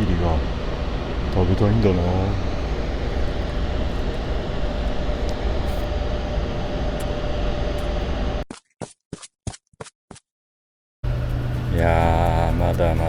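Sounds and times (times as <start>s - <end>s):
heavy low rumble: 0.0s - 8.4s, 11.1s - 13.0s
propeller plane engine droning: 0.0s - 8.4s, 11.0s - 13.0s.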